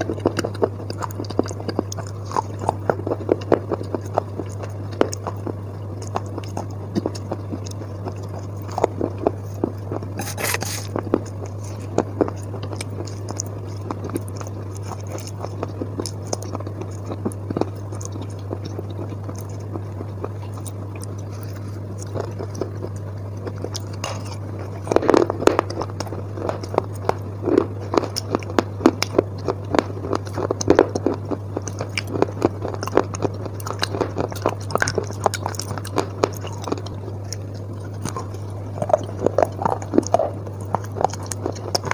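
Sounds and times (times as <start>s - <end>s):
squishy chewing: 0.0s - 41.9s
steady low hum: 0.0s - 41.9s
spoon scraping metal plate: 10.2s - 10.9s.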